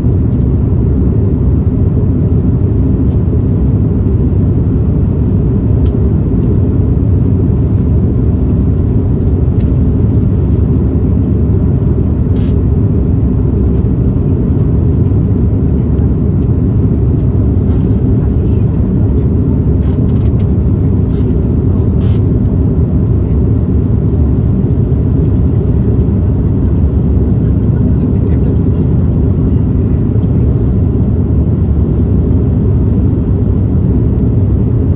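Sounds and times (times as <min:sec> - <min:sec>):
airplane cabin engine rumble: 0:00.0 - 0:34.9.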